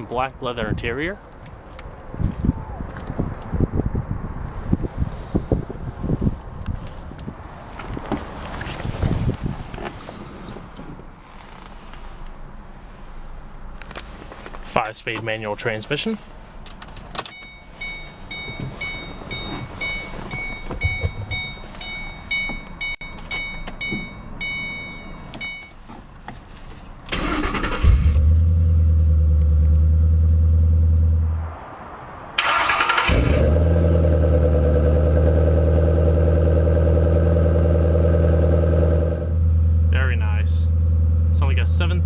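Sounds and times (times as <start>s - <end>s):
car warning chime pinging: 17.3s - 25.8s.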